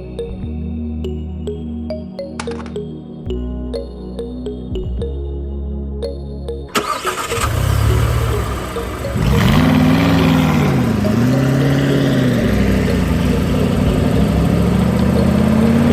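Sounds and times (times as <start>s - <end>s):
engine starting and revving: 6.7s - 15.9s.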